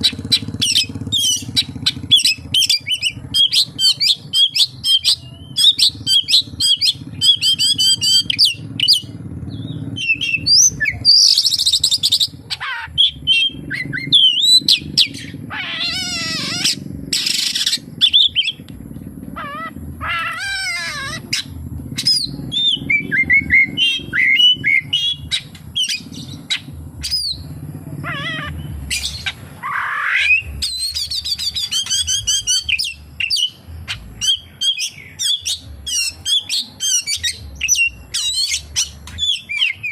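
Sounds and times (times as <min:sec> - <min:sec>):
bird singing whistles and trills: 0:00.0 - 0:18.8, 0:19.4 - 0:39.9
steady low hum: 0:00.0 - 0:39.9.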